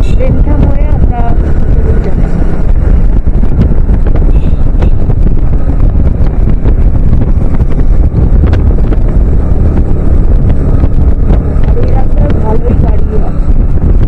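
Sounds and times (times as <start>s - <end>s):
road and wind noise rumble: 0.0s - 14.0s.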